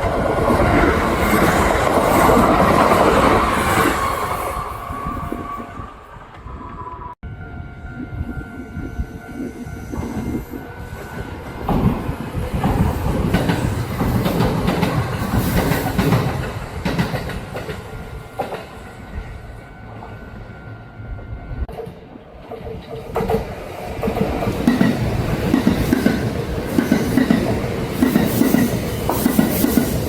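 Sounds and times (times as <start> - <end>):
electric train passing: 0.0 - 30.0.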